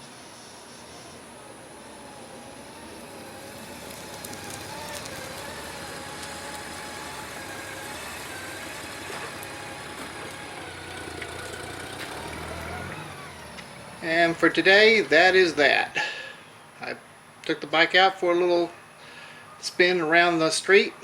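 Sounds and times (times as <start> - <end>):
motorcycle engine hum: 0.0 - 15.8.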